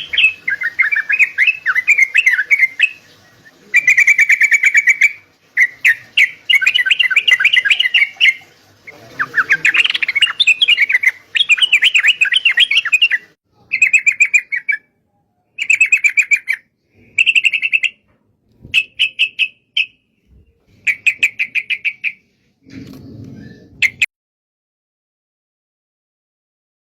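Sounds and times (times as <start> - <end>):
bulbul singing chattering phrases: 0.0 - 18.0, 18.8 - 22.3.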